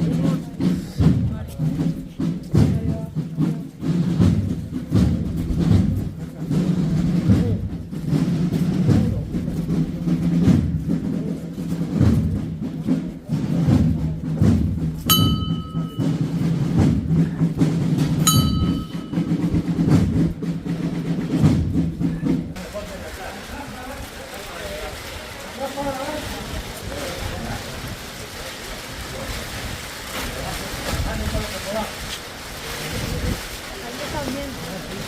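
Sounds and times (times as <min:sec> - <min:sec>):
drums beating: 0:00.0 - 0:35.0
high ringing note: 0:15.1 - 0:16.2, 0:18.3 - 0:19.4.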